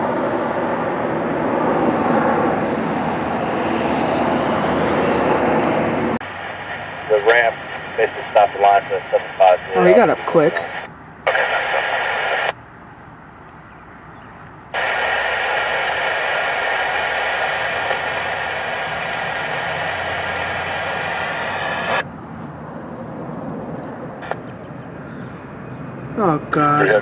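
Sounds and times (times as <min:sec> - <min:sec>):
radio scanner static: 0:06.2 - 0:12.6, 0:14.8 - 0:22.0, 0:24.2 - 0:24.6, 0:26.2 - 0:27.0.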